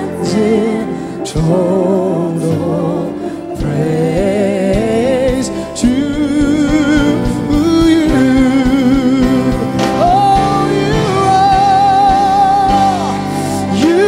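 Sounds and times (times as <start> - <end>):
gospel singing with vibrato: 0.0 - 14.0
sustained band chords: 0.0 - 14.0
steady drum beat: 3.6 - 14.0.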